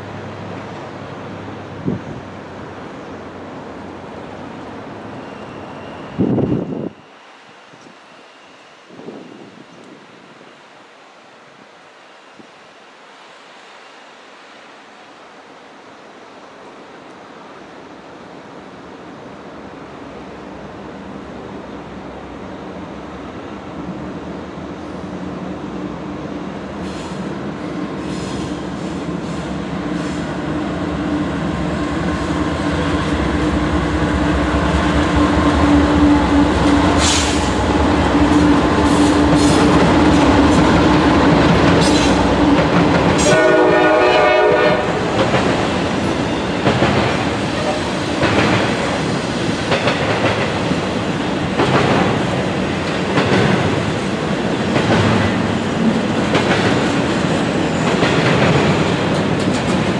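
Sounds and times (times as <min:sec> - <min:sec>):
locomotive engine drone: 0:18.7 - 0:48.0
train horn blast: 0:43.2 - 0:45.2
wheels clacking over rail joints: 0:45.0 - 0:59.9.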